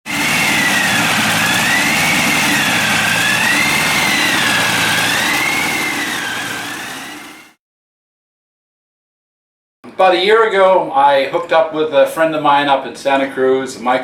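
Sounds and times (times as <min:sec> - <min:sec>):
aircraft engine running: 0:00.1 - 0:07.6.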